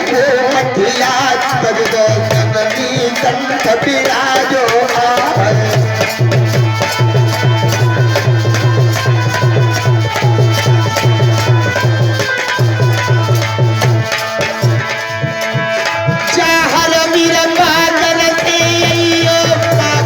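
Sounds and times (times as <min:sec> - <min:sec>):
hand drum rhythm: 0:00.0 - 0:20.0
held notes from melody instrument: 0:06.2 - 0:16.3.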